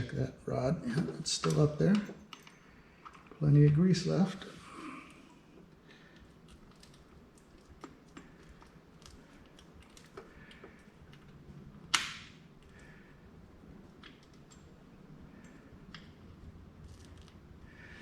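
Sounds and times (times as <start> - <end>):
small clicks and taps: 6.1 - 13.0.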